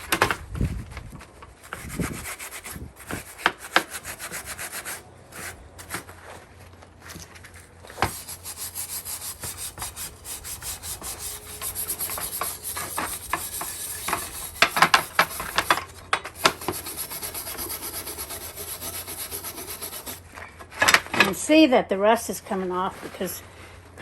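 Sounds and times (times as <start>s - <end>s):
sponge scrubbing rusty metal: 1.6s - 5.6s, 7.9s - 20.2s.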